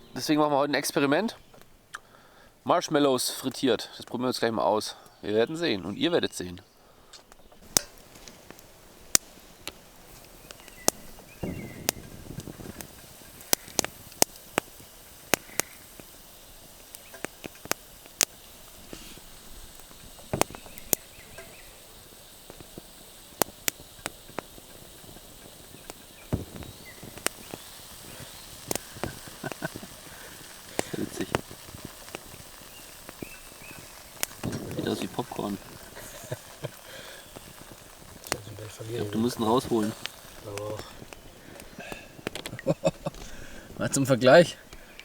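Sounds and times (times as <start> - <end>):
pops and crackles: 0.0 - 2.5, 3.2 - 45.0
hot oil sizzling: 0.0 - 45.0.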